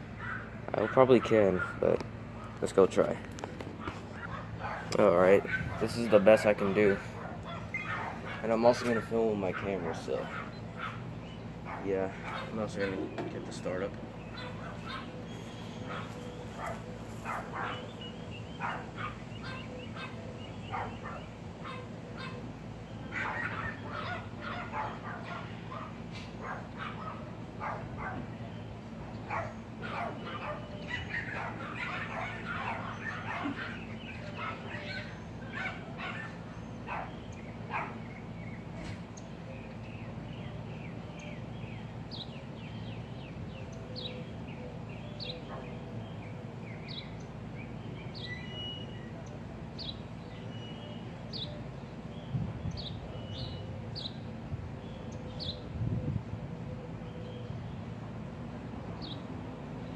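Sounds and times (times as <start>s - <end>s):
air conditioner humming: 0.0s - 59.9s
dog barking: 0.2s - 1.8s, 3.8s - 11.0s, 11.6s - 13.1s, 14.3s - 15.2s, 15.8s - 17.9s, 18.6s - 22.4s, 23.1s - 28.3s, 29.2s - 38.0s, 45.4s - 45.8s.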